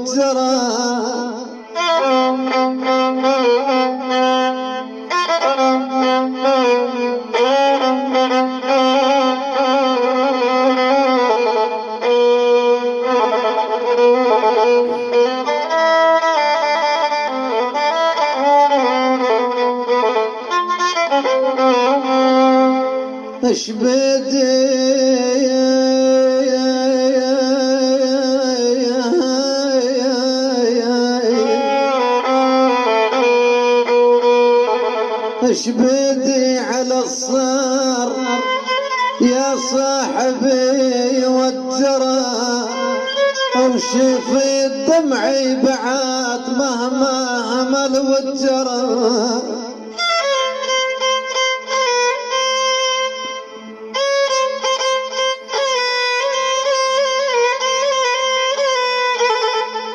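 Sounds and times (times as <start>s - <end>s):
violin playing slow melody: 0.0s - 59.9s
violin playing ornamented phrase: 31.0s - 35.6s.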